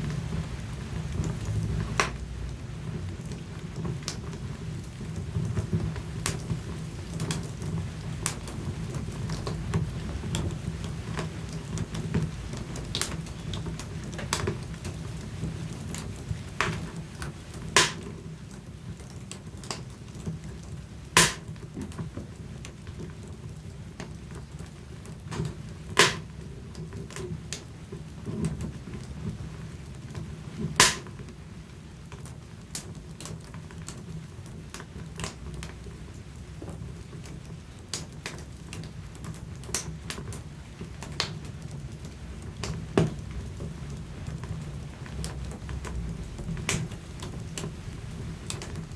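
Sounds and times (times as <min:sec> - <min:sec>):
wood fire crackling: 0:00.0 - 0:48.9
sharp pops from fire: 0:01.2 - 0:02.3, 0:03.3 - 0:10.5, 0:11.1 - 0:15.2, 0:15.9 - 0:18.3, 0:21.1 - 0:22.0, 0:25.3 - 0:26.4, 0:30.6 - 0:31.4, 0:37.9 - 0:40.4, 0:45.2 - 0:47.8, 0:48.4 - 0:48.9
sharp loud pops: 0:17.8 - 0:18.0, 0:21.2 - 0:21.5, 0:26.0 - 0:26.3, 0:30.8 - 0:31.1.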